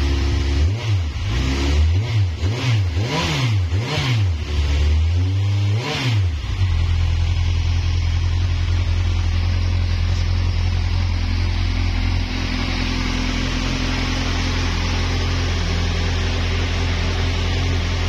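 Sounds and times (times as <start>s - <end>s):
motorcycle engine idling: 6.3s - 18.0s.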